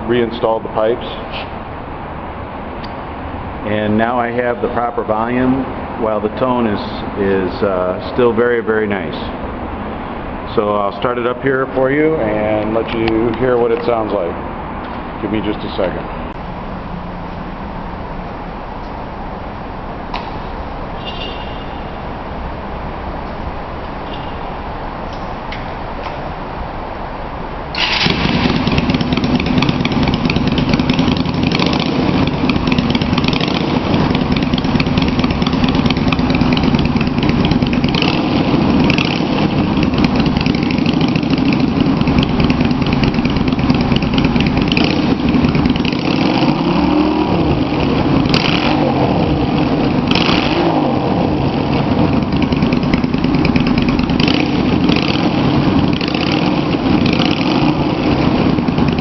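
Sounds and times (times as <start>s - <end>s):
motorcycle engine idling: 16.4s - 22.6s, 27.8s - 59.0s.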